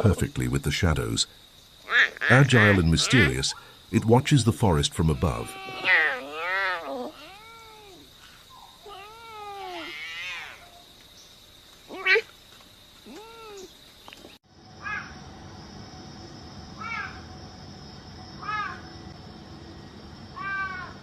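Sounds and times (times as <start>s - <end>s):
cat meowing: 5.1s - 8.1s, 8.8s - 10.7s, 11.9s - 12.3s, 13.1s - 13.7s, 20.4s - 21.0s.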